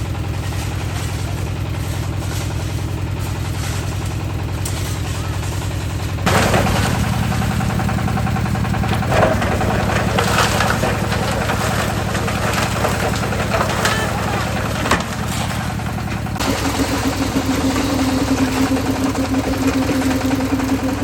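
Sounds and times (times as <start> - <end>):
concrete mixer engine running: 0.0 - 21.0
rattling clatter: 0.5 - 16.6.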